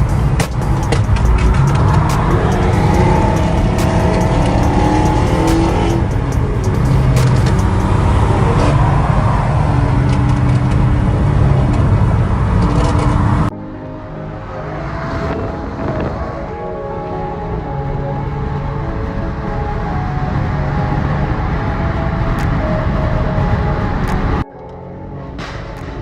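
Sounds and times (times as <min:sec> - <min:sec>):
car engine and exhaust revving: 0:00.0 - 0:13.5, 0:14.2 - 0:26.0
exhaust crackles: 0:00.0 - 0:13.5.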